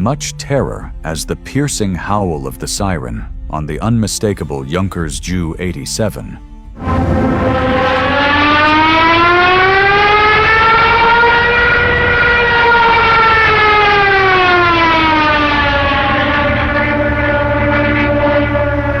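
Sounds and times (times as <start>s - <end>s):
steady low drone: 0.0s - 19.0s
dive siren wailing: 6.8s - 19.0s.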